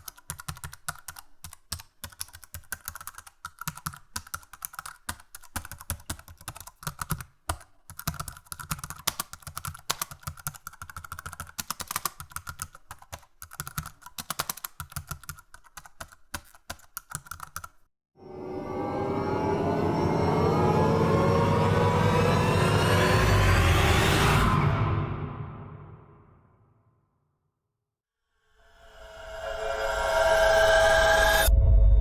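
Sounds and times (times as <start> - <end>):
fast typing on a keyboard: 0.0 - 17.8
loud sound rising in pitch: 18.2 - 26.4, 28.6 - 32.0.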